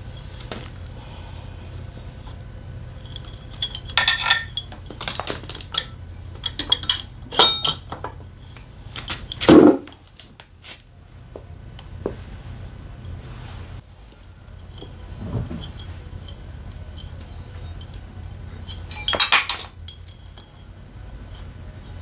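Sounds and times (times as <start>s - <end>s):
steady low hum: 0.0s - 22.0s
metal tools clinking: 3.0s - 9.7s, 18.6s - 20.6s.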